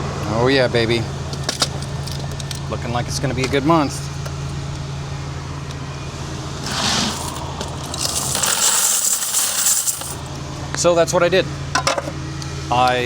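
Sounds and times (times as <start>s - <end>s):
low hum: 1.0s - 10.7s
coins pouring and rattling: 6.6s - 10.3s.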